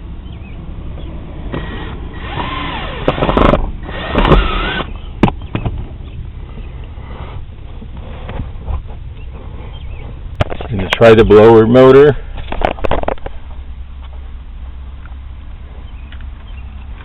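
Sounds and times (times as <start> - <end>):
power drill motor whine: 1.5 - 5.0.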